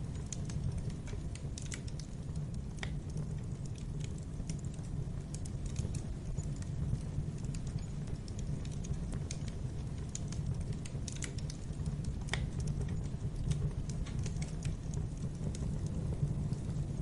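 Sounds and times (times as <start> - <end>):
low rumble of burning logs: 0.0 - 17.0
wood fire crackling: 0.0 - 17.0.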